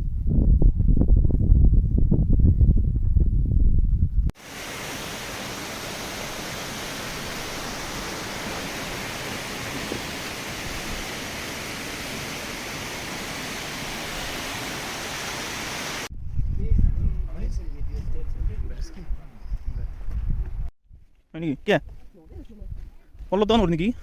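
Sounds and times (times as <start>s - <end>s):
wind rumbling on microphone: 0.0s - 21.1s, 21.8s - 24.0s
fast-flowing water rushing: 4.4s - 16.1s.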